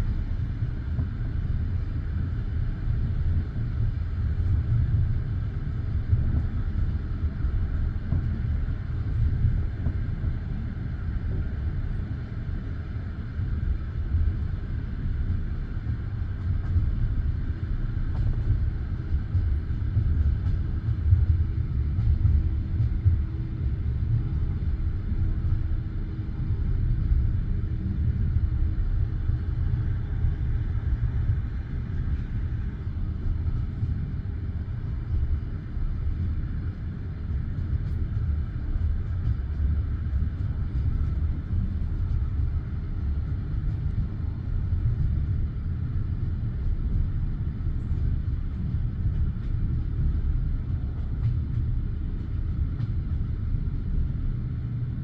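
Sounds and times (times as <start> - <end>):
railway car wheels rumbling on track: 0.0 - 55.0.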